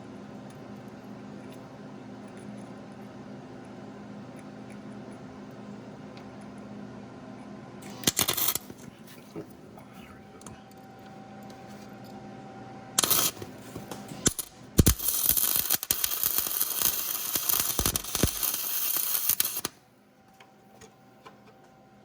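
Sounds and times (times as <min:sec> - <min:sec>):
welding arc crackling: 0:07.9 - 0:08.8, 0:13.0 - 0:19.8.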